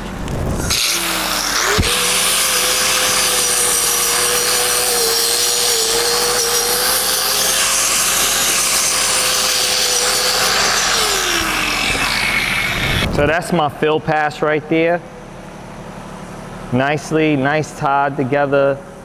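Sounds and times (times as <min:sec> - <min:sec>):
angle grinder grinding steel: 0:00.5 - 0:13.1.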